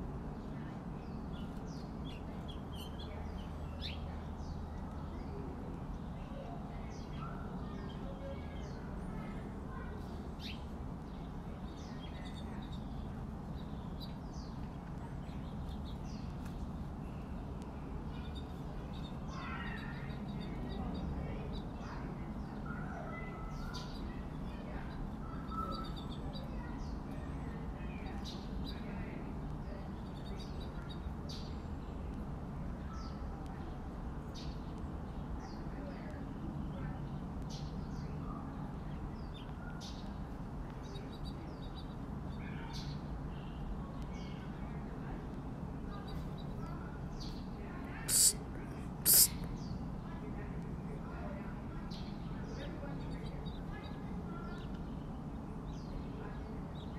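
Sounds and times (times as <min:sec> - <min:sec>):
songbirds chirping: 0:00.0 - 0:56.9
low warbling bird calls: 0:48.1 - 0:48.4, 0:49.1 - 0:49.3.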